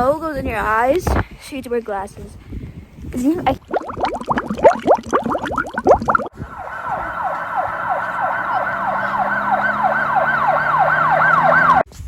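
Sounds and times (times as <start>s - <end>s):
emergency siren yelping: 6.3s - 11.9s.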